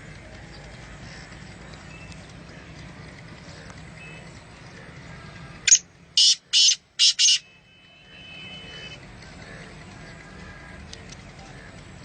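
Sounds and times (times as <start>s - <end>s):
low steady background noise: 0.0s - 12.0s
bird harsh rasping calls: 3.4s - 7.6s.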